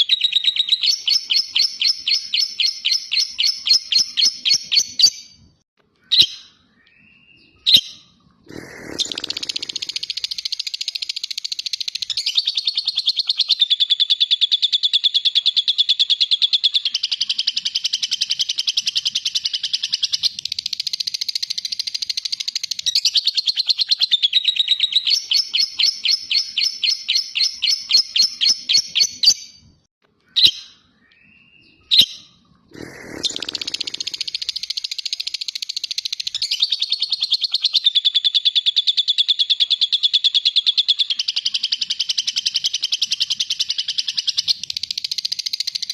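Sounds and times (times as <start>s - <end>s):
bird chirps: 0.0s - 45.9s
lovebird chattering trill: 7.7s - 15.4s, 32.8s - 45.9s.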